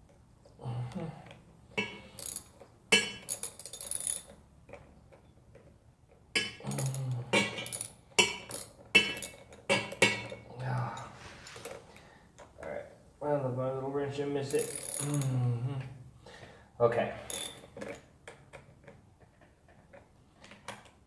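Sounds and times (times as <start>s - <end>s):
metallic clicks and rattles of hardware: 1.8s - 5.7s, 6.3s - 10.4s.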